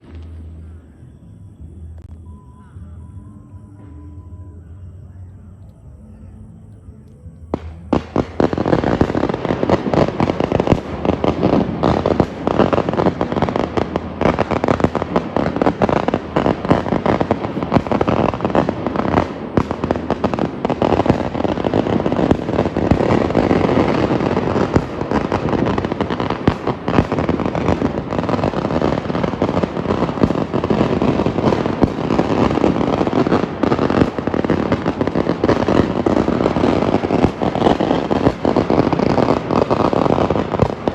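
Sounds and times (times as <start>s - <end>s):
firecrackers crackling: 0.0s - 1.1s, 7.3s - 40.9s.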